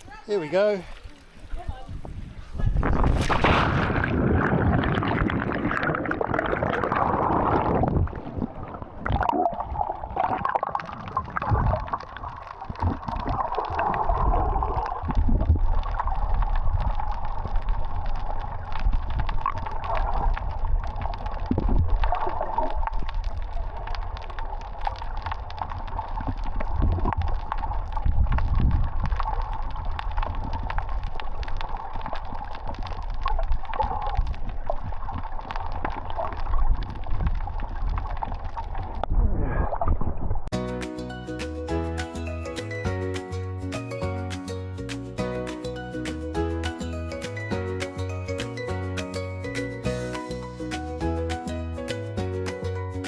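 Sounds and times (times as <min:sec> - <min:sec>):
underwater gurgling and sloshing: 0:01.1 - 0:40.5
low underwater rumble: 0:01.2 - 0:40.5.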